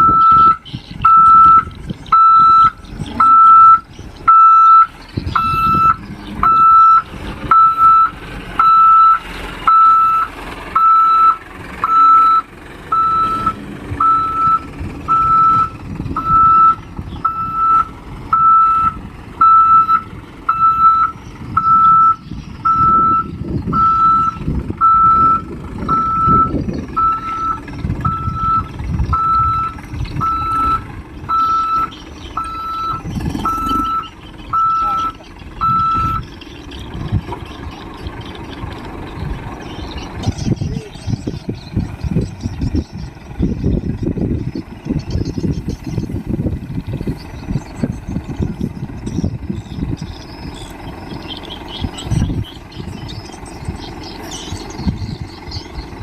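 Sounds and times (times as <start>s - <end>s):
truck reversing alarm beeping: 0.0s - 40.5s
diesel engine rumble: 0.0s - 56.0s.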